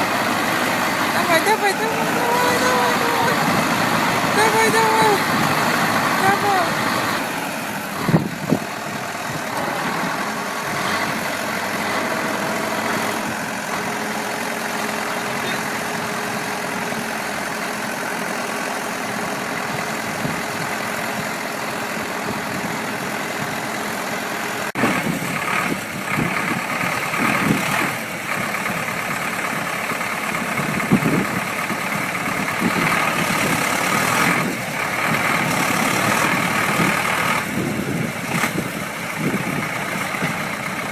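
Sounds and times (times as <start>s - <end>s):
engine knocks and surges: 0.0s - 40.9s
vehicle engine running: 0.0s - 40.9s.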